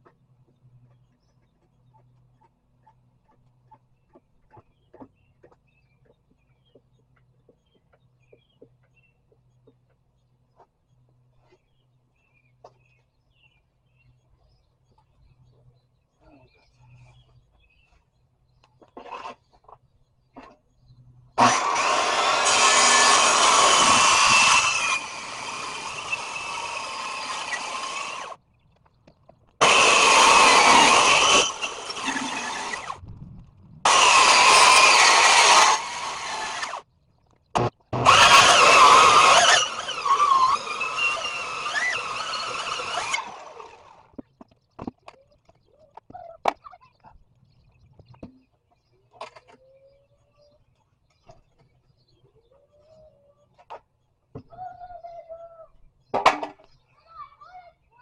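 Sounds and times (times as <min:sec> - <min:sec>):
power saw cutting wood: 0:21.4 - 0:28.4, 0:29.6 - 0:33.0, 0:33.8 - 0:36.8, 0:37.6 - 0:44.1.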